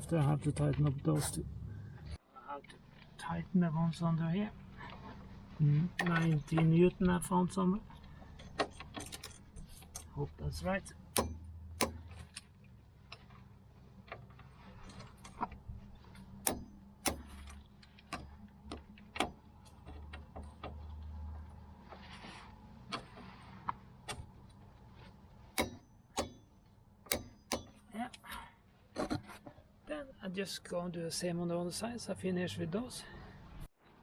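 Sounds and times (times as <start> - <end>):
short rustle: 20.7 - 25.5.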